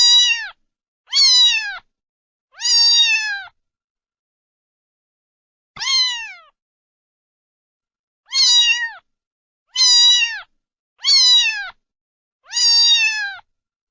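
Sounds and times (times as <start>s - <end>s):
cat meowing: 0.0s - 1.9s, 2.5s - 3.6s, 5.8s - 6.6s, 8.3s - 9.1s, 9.7s - 11.8s, 12.4s - 13.5s.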